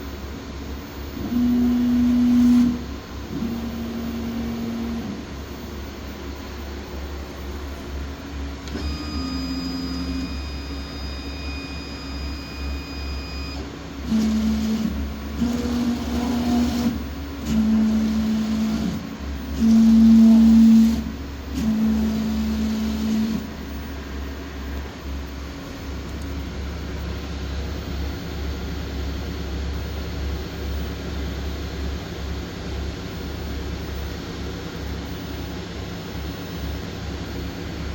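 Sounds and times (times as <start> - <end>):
machine drive humming: 0.0 - 37.9
short machine whines: 8.6 - 23.6.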